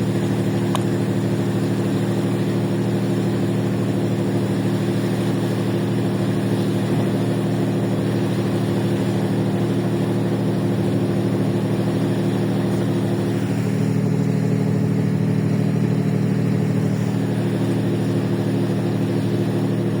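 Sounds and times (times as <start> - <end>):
ferry engines humming: 0.0 - 20.0.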